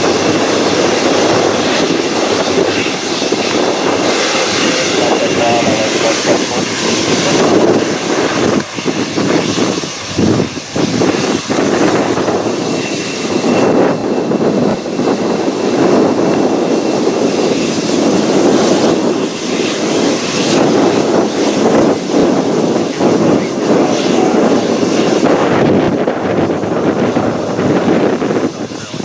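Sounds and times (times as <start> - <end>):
jet engines running: 0.0 - 29.0.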